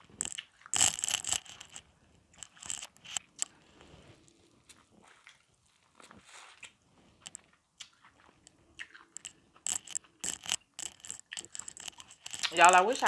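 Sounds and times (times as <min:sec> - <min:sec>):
chewing corn on the cob: 0:00.0 - 0:13.0.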